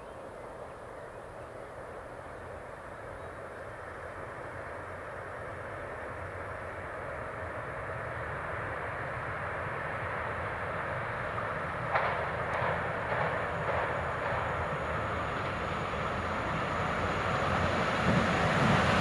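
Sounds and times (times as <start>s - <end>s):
train running on track: 0.1s - 19.0s
train wheels clacking on rails: 10.4s - 19.0s.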